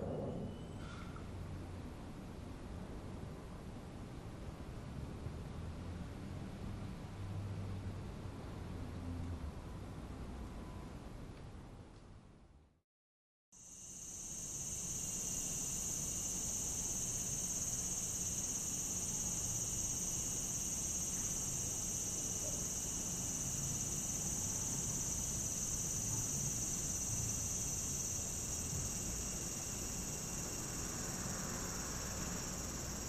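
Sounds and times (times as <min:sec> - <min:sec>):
cicadas droning: 0:13.6 - 0:33.0.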